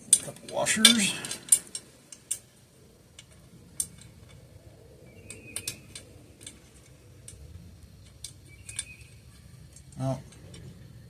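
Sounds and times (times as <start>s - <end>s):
small hardware clinking: 0.1s - 2.5s, 8.0s - 10.7s.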